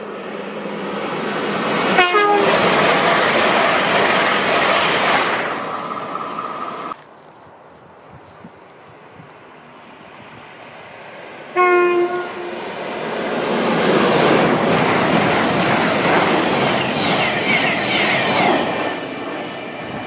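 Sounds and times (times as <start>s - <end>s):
train passing at speed: 0.0s - 7.0s, 8.9s - 20.0s
train horn blast: 1.9s - 2.6s, 11.6s - 12.6s.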